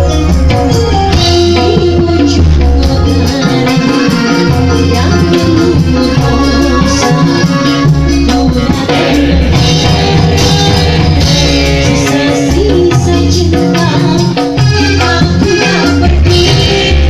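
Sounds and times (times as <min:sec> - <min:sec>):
hand percussion: 0:00.0 - 0:17.0
person singing: 0:01.2 - 0:17.0
music with heavy bass: 0:08.0 - 0:13.1.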